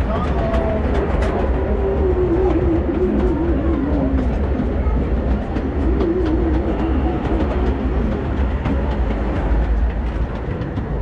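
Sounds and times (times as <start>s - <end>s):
miniature steam train rumbling: 0.0s - 11.0s
wheels clicking over rail joints: 0.0s - 11.0s.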